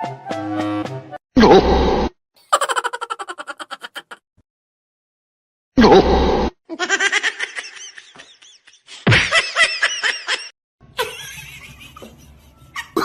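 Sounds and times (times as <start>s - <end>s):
person laughing: 2.4s - 4.2s, 6.7s - 13.0s.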